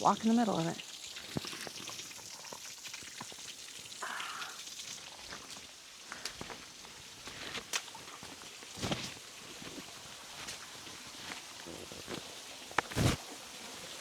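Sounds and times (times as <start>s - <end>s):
water trickling: 0.0s - 14.0s
footsteps wading through stream: 5.1s - 13.2s.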